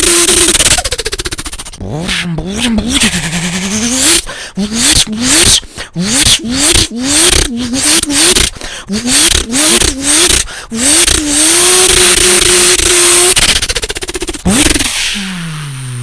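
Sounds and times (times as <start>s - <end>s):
person imitating engine revs: 0.0s - 16.0s.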